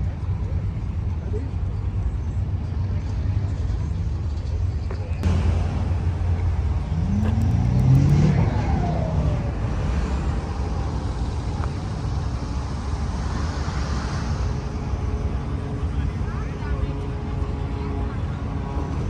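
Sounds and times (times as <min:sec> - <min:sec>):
low rumble of traffic: 0:00.0 - 0:19.0
car engine accelerating past: 0:05.2 - 0:16.0.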